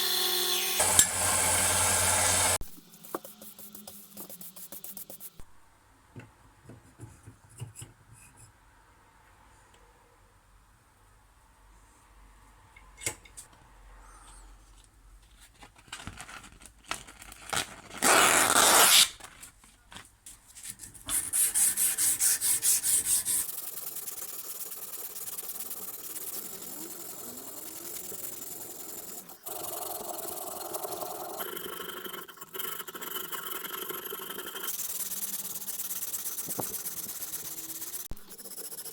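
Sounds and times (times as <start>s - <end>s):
sandpaper rubbing on metal: 21.1s - 31.0s, 34.7s - 38.9s.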